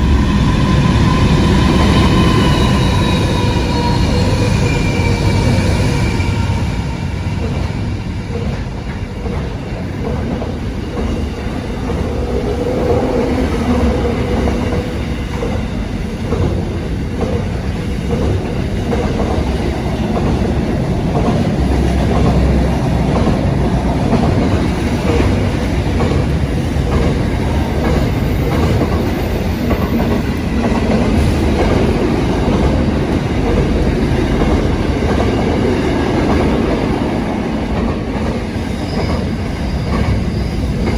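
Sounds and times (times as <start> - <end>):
train rumbling on track: 0.0 - 40.9
wheels clacking over rails: 8.3 - 40.9.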